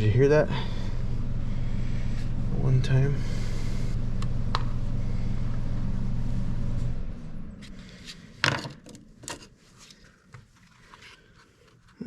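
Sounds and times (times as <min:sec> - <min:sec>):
low machine hum: 0:00.0 - 0:08.4.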